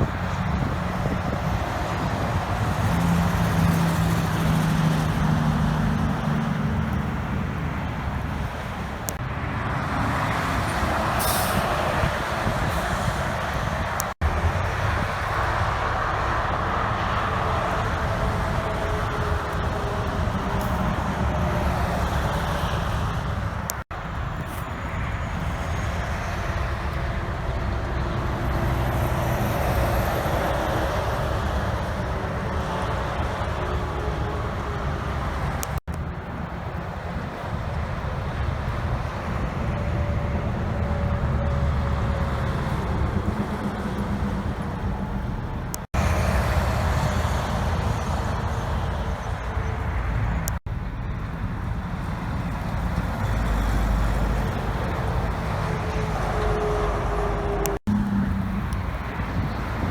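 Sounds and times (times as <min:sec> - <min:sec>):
heavy trucks driving by: 0:00.0 - 0:59.9
air brake hiss: 0:11.2 - 0:12.0.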